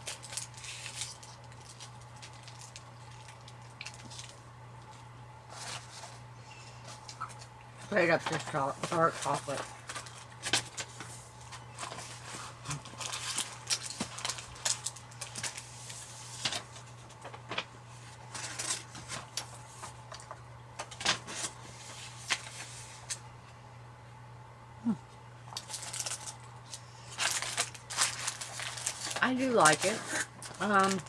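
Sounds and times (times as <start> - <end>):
chocolate bar breaking and crinkling: 0.0 - 4.4, 12.7 - 15.6, 25.5 - 31.0.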